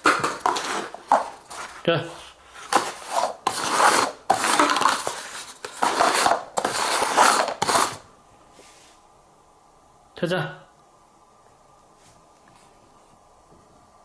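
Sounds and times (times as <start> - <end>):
paper cups sliding on table: 0.0 - 9.0.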